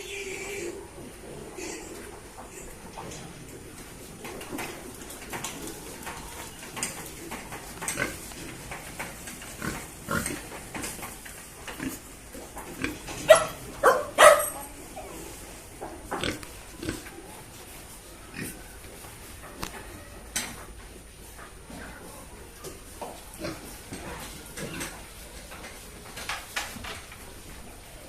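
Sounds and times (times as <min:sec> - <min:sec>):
pigs grunting: 0:00.0 - 0:17.5, 0:18.2 - 0:18.8, 0:23.3 - 0:25.2.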